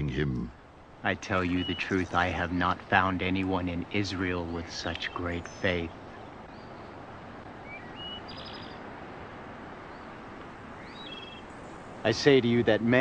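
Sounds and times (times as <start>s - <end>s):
background hiss: 0.0s - 13.0s
high bird chirps: 1.4s - 2.1s, 7.6s - 8.8s, 10.8s - 11.9s
bird trill: 1.4s - 3.2s, 7.6s - 8.9s, 10.8s - 12.2s.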